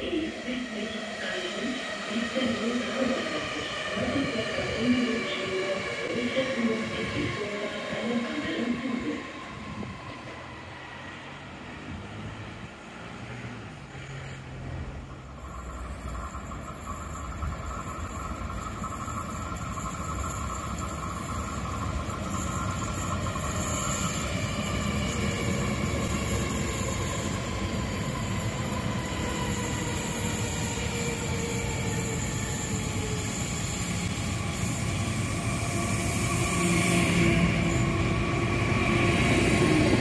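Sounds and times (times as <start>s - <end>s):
train rolling noise: 0.0s - 40.0s
electric train braking whine: 13.7s - 40.0s.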